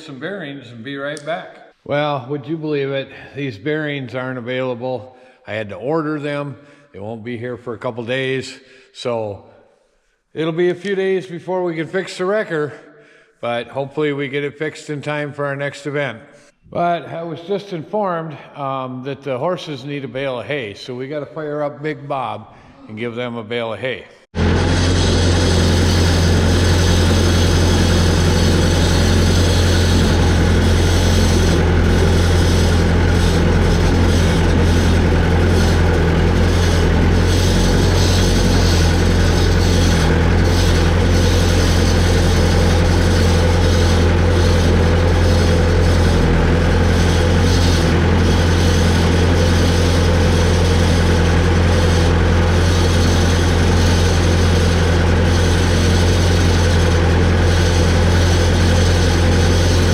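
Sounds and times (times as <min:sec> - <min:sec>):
large engine idling: 0:24.4 - 0:59.9.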